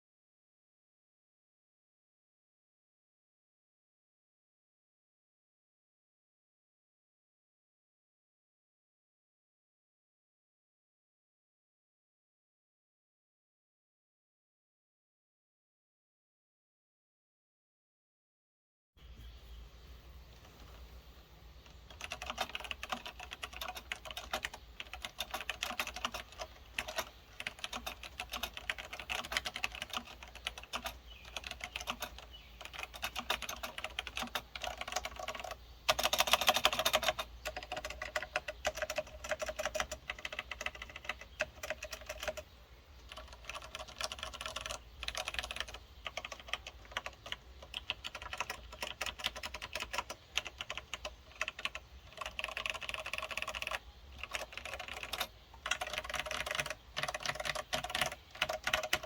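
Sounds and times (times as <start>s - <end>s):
mechanical keyboard typing: 21.6s - 59.0s.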